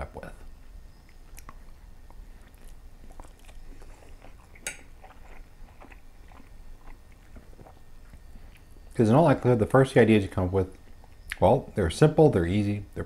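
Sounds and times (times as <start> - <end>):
chewing noodles: 1.0 - 9.6
wet mouth clicks: 1.1 - 8.7.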